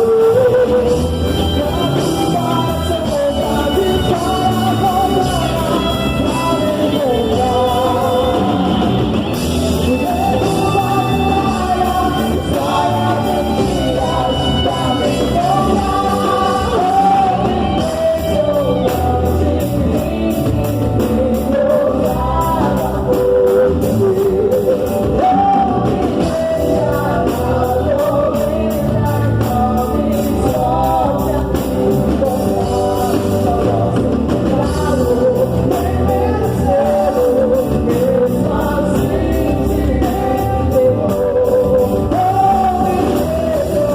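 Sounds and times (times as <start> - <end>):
amplified person singing: 0.0 - 43.9
worship band playing: 0.0 - 43.9.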